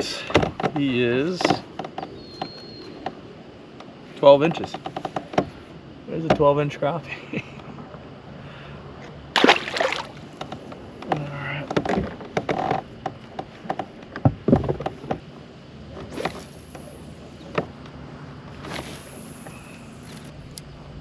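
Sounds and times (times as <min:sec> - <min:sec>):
knocks and clunks on a plastic kayak: 0:00.2 - 0:03.2, 0:09.4 - 0:15.3.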